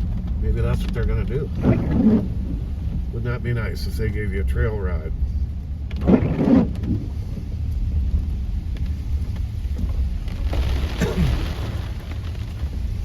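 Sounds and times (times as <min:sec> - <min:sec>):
engine and tyre rumble: 0:00.0 - 0:13.0
rain on a car: 0:00.0 - 0:13.0.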